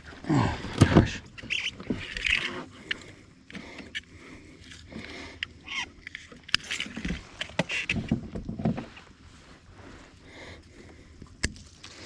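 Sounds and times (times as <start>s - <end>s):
knocks and clicks of handling gear: 0.6s - 4.1s, 4.7s - 9.1s.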